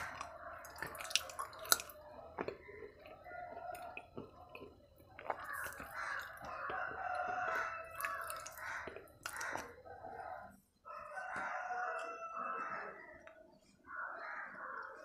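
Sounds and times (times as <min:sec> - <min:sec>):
crunchy chewing: 0:00.0 - 0:15.0
rooster crowing: 0:05.4 - 0:13.2.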